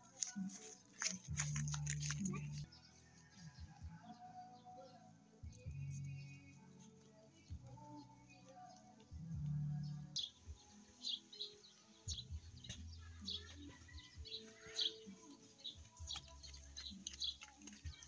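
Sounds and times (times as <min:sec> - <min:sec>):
faint music: 0:00.0 - 0:18.0
birds chirping: 0:04.0 - 0:18.0.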